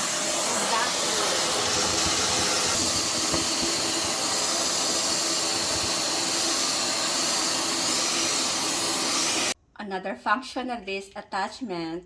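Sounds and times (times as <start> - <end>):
vacuum cleaner air hiss: 0.0 - 9.6
vacuum motor hum: 0.0 - 9.6.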